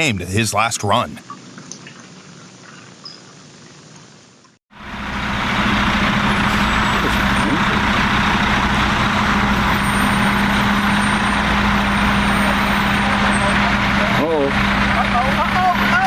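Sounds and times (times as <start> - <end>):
road and wind noise: 1.3 - 16.0
vehicle engine hum: 4.3 - 16.0.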